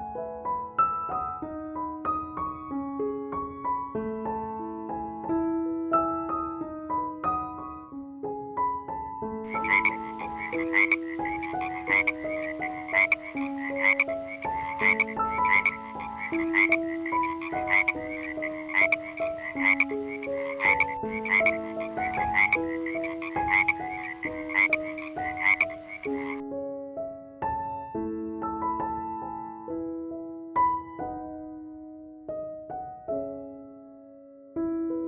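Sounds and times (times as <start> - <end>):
soft piano music: 0.0 - 35.0
frog croaking: 9.5 - 26.4.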